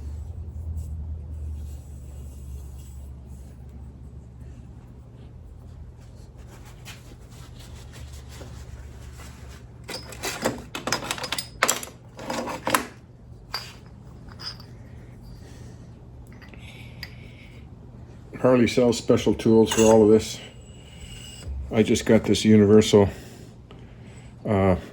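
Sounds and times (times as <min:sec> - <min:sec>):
steady low hum: 0:00.0 - 0:10.0, 0:12.9 - 0:24.9
metal tools clinking and rattling: 0:09.9 - 0:12.9, 0:13.5 - 0:14.8, 0:19.6 - 0:20.5.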